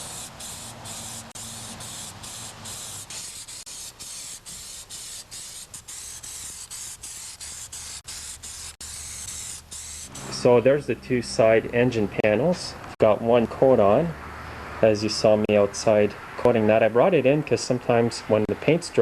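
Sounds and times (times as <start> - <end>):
spray paint hissing: 0.0 - 10.6.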